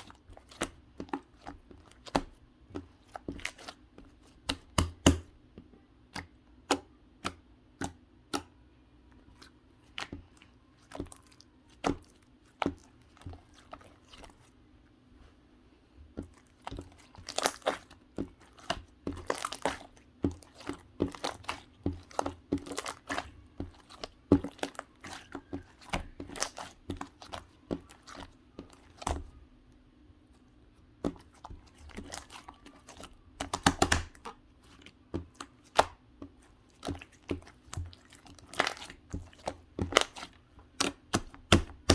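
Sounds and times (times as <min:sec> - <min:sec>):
slime popping and crackling: 0:31.9 - 0:34.2.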